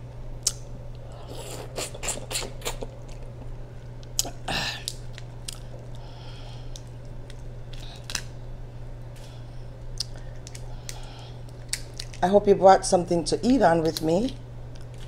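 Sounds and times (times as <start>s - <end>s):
low hum: 0.0s - 15.0s
chewing prawn: 0.4s - 3.5s.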